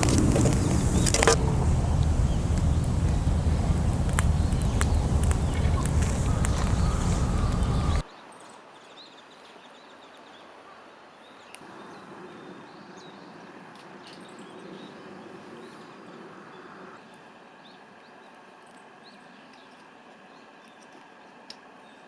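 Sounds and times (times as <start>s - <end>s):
sharp tick: 0.0s - 8.0s
low outdoor hiss: 0.0s - 22.0s
faint bird chirps: 0.5s - 13.4s.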